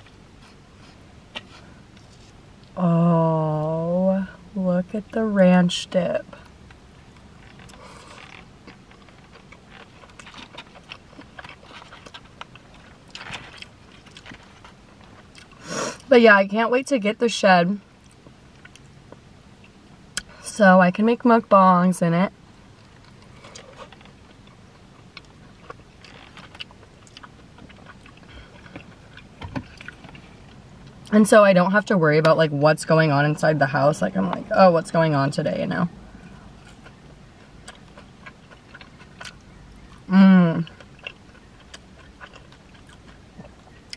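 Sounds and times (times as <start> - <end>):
wet chewing: 7.1 - 16.1, 18.0 - 20.3, 22.8 - 31.1, 36.2 - 43.9.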